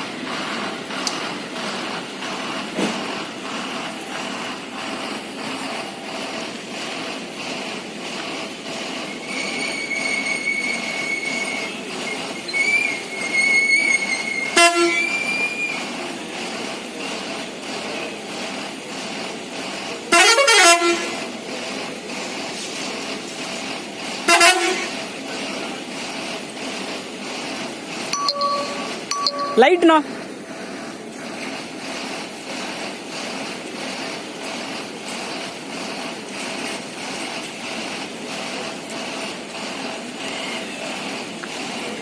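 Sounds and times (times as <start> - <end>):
bus horn: 14.5 - 15.1, 20.1 - 21.2, 24.2 - 25.0
thin high steady tone: 28.0 - 30.2.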